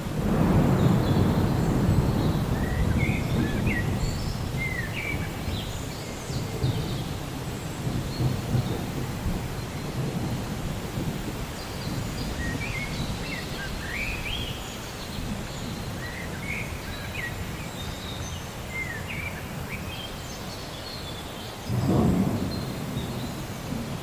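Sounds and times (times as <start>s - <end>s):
thunder rumble: 0.0s - 16.8s, 21.7s - 24.0s
rain: 0.0s - 24.0s.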